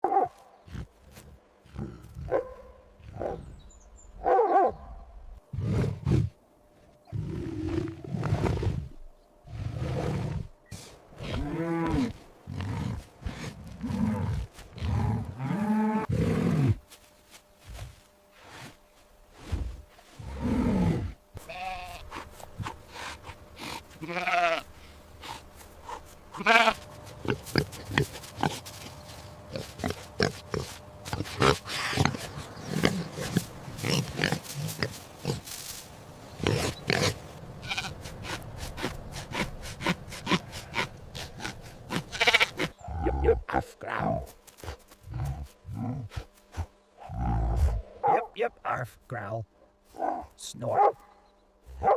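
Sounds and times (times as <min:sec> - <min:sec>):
drawn-out pitched animal calls: 0:20.3 - 0:35.8, 0:36.4 - 0:43.5
pig grunts: 0:25.2 - 0:28.9, 0:29.5 - 0:35.5, 0:36.4 - 0:48.3.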